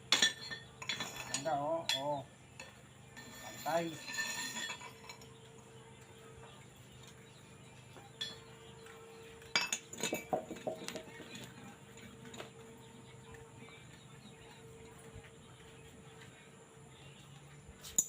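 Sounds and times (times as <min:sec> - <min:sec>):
steady low hum: 0:00.0 - 0:18.0
metal pieces clinking and tapping: 0:00.1 - 0:05.4, 0:08.0 - 0:08.8, 0:09.4 - 0:12.4.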